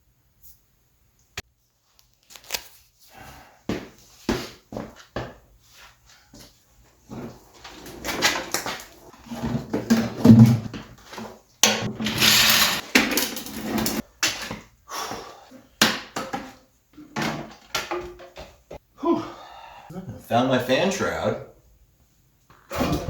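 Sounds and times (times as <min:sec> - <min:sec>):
objects scraping: 0:07.1 - 0:14.1.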